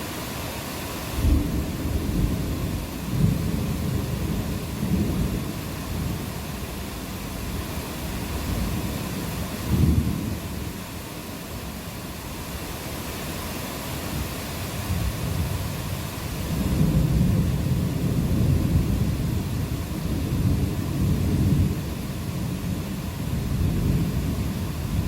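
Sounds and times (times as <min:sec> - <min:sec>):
steady rain: 0:00.0 - 0:25.0
low rumble of thunder: 0:01.2 - 0:10.8, 0:14.8 - 0:25.0.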